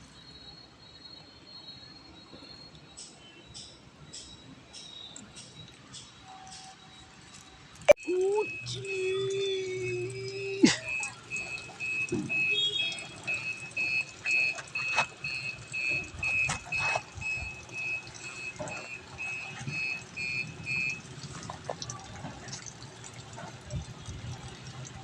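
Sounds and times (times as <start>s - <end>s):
rapid high-pitched beeping: 7.9s - 21.0s.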